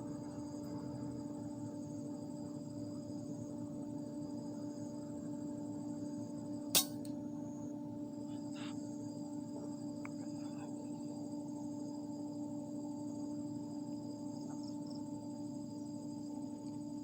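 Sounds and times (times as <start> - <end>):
steady droning hum: 0.0 - 17.0
sharp crack: 6.8 - 7.1.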